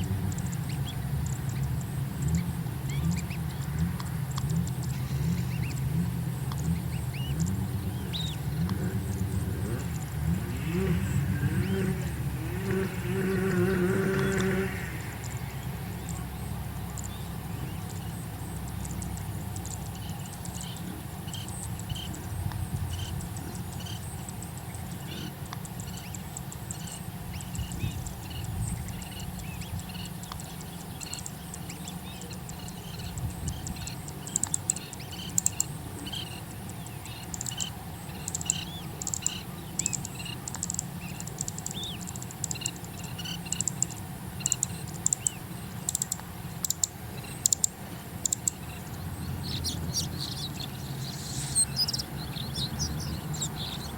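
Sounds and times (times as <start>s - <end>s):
birds chirping: 0.0s - 53.9s
low steady rumble: 0.0s - 53.9s
sharp clicks: 33.6s - 35.7s, 36.7s - 48.6s.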